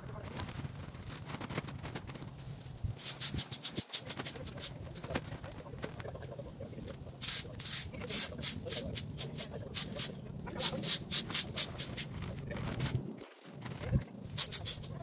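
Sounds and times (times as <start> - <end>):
quick scraping strokes: 1.2 - 5.4, 7.2 - 13.0, 14.3 - 15.0.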